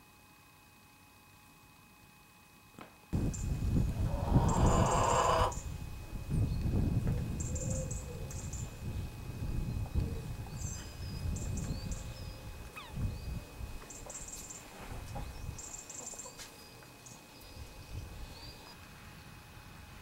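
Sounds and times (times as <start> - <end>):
low rumble on microphone: 3.2 - 13.8
birds chirping: 3.3 - 5.7.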